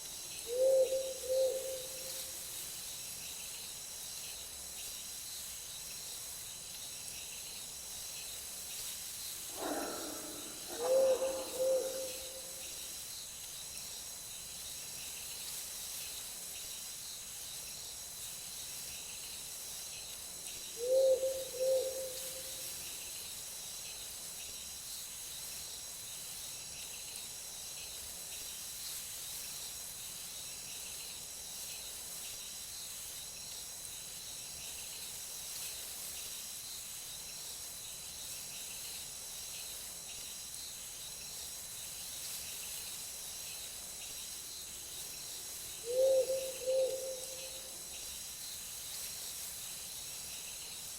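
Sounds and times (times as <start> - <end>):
crickets and insects chirping: 0.0 - 50.9
owl hooting: 0.5 - 2.1, 9.5 - 12.6, 20.8 - 22.4, 45.8 - 47.7.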